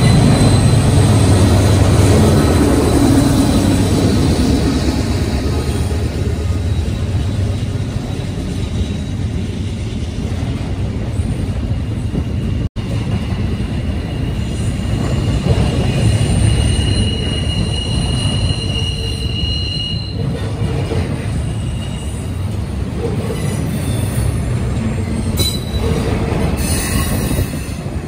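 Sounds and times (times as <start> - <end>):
diesel locomotive passing: 0.0 - 28.0.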